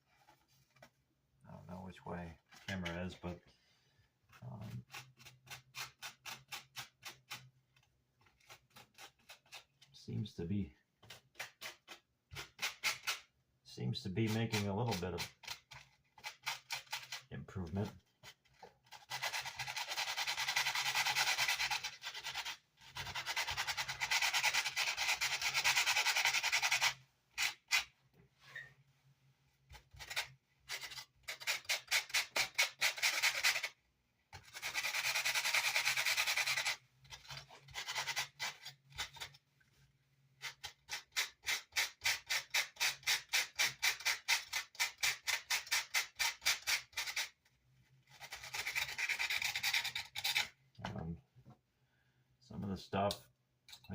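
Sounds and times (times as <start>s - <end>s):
sandpaper sanding wood: 19.0s - 27.5s, 34.5s - 36.8s.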